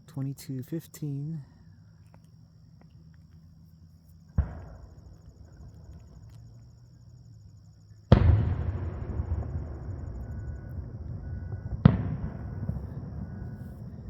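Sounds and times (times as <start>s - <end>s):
distant firework booms: 4.3s - 6.2s, 8.1s - 14.0s.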